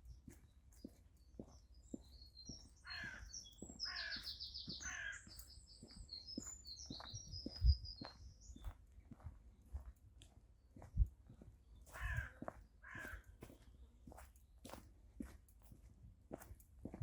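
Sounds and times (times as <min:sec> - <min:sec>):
songbirds chirping: 0:00.0 - 0:15.7
soft footsteps on a path: 0:00.0 - 0:17.0
crow cawing: 0:02.8 - 0:05.3, 0:11.9 - 0:13.3.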